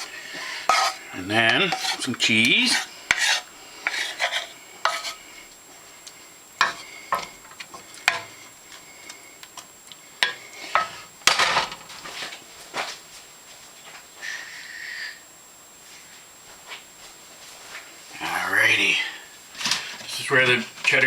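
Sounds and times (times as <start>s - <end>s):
utensil scraping and tapping pan: 0.0s - 5.2s, 6.6s - 8.8s, 10.2s - 11.0s.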